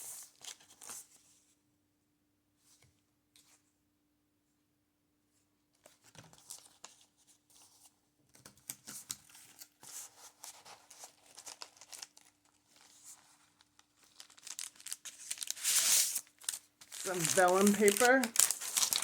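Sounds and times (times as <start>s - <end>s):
paper pages rustling: 5.8s - 19.0s
stiff paper clicks: 14.0s - 19.0s.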